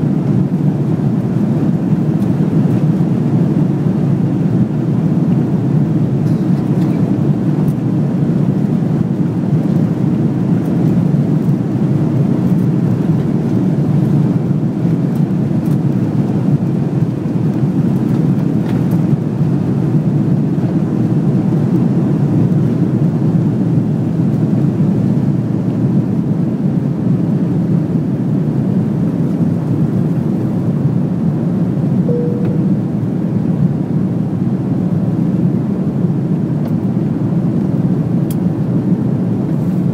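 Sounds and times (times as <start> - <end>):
jet cabin roar: 0.0 - 25.5, 27.0 - 39.9
short faint tone: 32.1 - 33.2.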